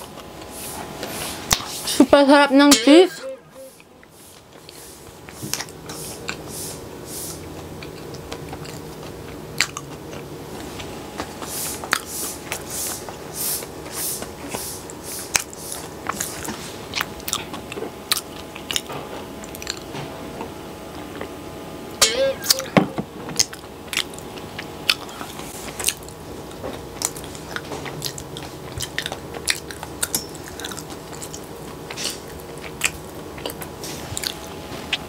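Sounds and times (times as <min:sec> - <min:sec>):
wet chewing sounds: 0:04.0 - 0:06.5, 0:07.3 - 0:20.1, 0:23.4 - 0:35.0
insecticide fogger droning hum: 0:08.8 - 0:35.0.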